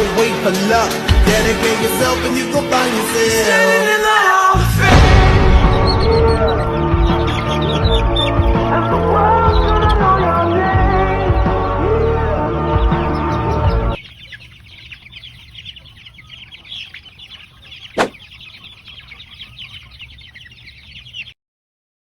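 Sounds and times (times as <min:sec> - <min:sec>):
background pop music: 0:00.0 - 0:14.0
chicks peeping: 0:00.0 - 0:21.4.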